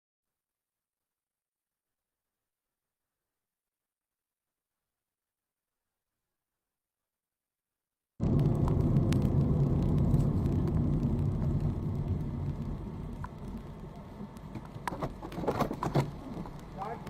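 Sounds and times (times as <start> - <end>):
car engine rumble: 8.2 - 17.0
road noise: 8.2 - 17.0.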